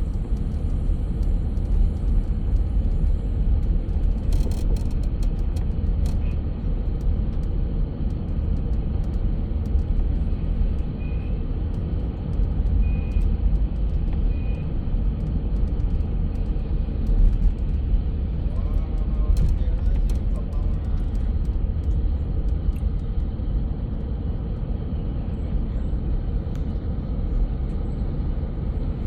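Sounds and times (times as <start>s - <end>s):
road vehicle rumble: 0.0s - 29.0s.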